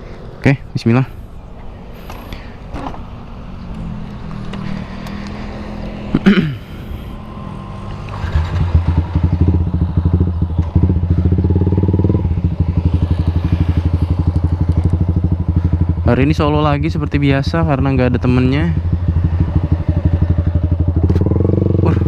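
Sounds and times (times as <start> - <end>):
motorcycle engine running: 7.6 - 22.0.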